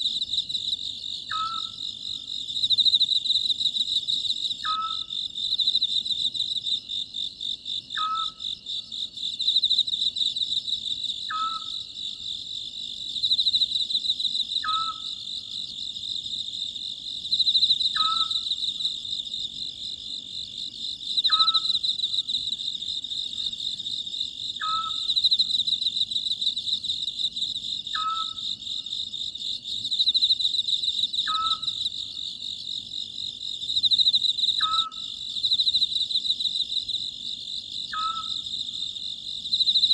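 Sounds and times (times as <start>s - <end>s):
insects chirring: 0.0s - 39.9s
owl calling: 1.3s - 1.8s, 4.6s - 5.1s, 8.0s - 8.4s, 11.3s - 11.8s, 14.6s - 15.1s, 18.0s - 18.4s, 21.3s - 21.8s, 24.6s - 25.1s, 28.0s - 28.4s, 31.3s - 31.8s, 34.6s - 35.1s, 37.9s - 38.4s.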